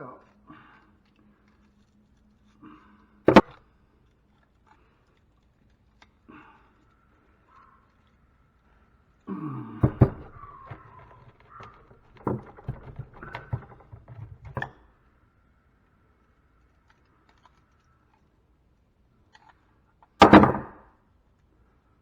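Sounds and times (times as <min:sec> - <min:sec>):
metal knocks and clanks: 0:09.8 - 0:14.7
metal scraping and creaking: 0:09.8 - 0:14.7.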